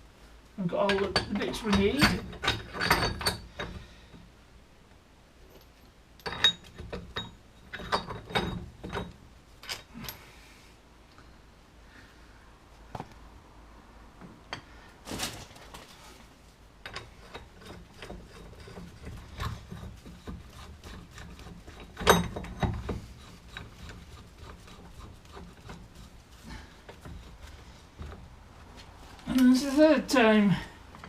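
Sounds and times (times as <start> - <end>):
tools and metal parts clicking: 0.9 - 3.8, 5.5 - 10.2, 16.8 - 26.1.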